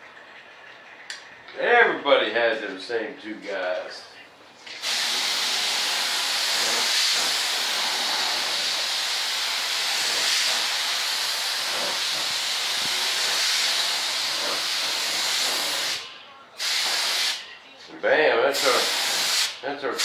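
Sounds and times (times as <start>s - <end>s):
spray paint hissing: 4.7s - 17.4s, 18.5s - 19.6s.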